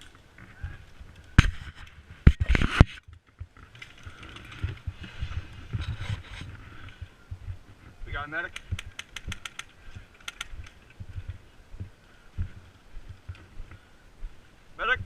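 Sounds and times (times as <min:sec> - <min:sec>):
rustling and scuffing: 0:00.4 - 0:08.9.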